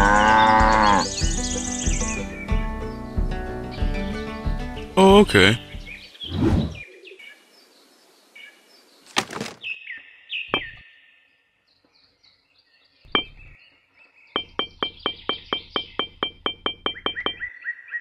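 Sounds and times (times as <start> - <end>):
short loud swish: 6.3 - 6.8
falling chirps: 14.4 - 17.5.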